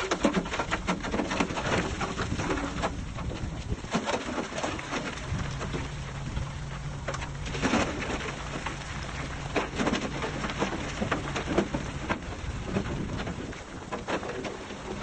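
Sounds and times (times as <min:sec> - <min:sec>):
crackling and knocks: 0:00.0 - 0:15.0
diesel engine droning: 0:05.1 - 0:13.4.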